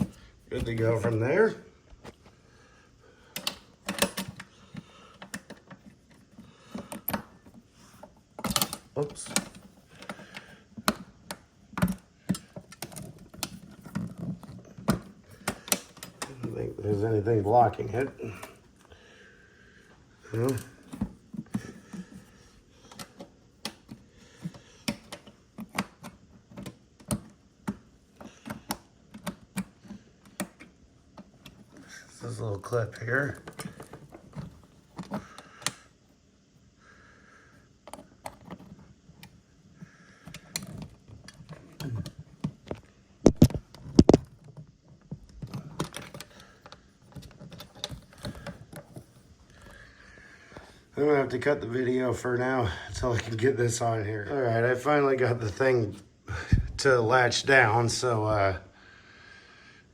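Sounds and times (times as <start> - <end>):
plastic clicks and knocks: 40.3 - 49.8.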